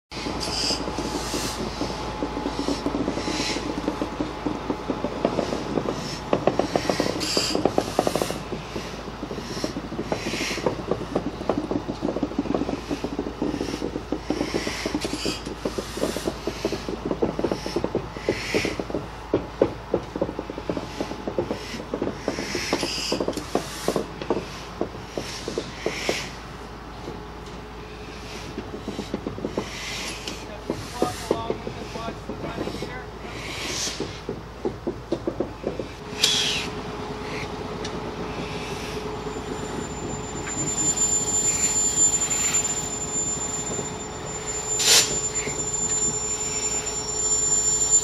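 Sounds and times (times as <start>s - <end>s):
wheels clanking on rails: 0.1s - 48.0s
metal-on-metal squeals: 36.0s - 48.0s.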